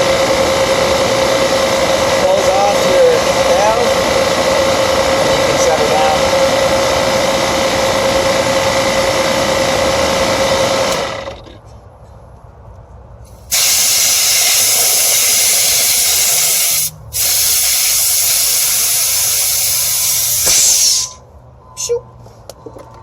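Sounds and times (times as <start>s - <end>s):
machine running steady tone: 0.0s - 11.5s
gas hissing from hose: 13.3s - 21.2s.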